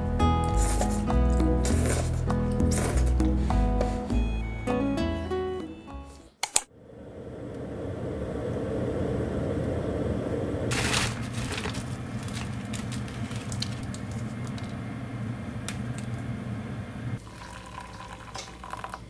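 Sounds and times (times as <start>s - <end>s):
low machine hum: 6.7s - 19.0s.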